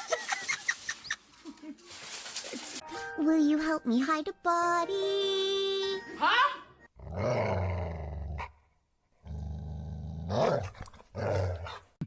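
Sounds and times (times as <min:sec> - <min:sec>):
animal growling low: 0:07.0 - 0:08.5, 0:09.2 - 0:10.6.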